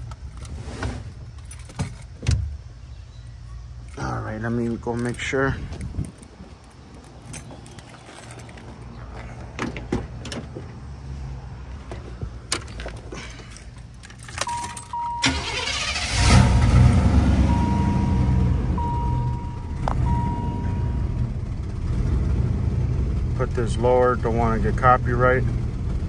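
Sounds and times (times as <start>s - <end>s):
car engine starting and running: 9.6s - 26.0s
steady tone: 16.6s - 21.4s.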